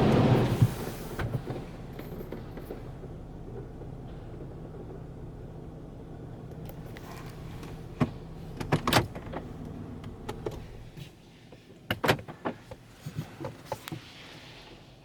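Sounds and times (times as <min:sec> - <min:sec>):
car wash low hum: 0:00.0 - 0:11.8
sharp clicks and knocks: 0:06.5 - 0:10.7.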